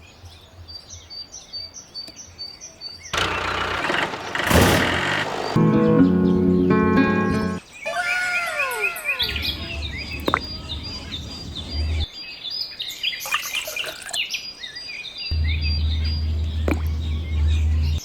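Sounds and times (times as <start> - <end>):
birds chirping: 0.4 - 18.0
low hum: 15.3 - 18.0.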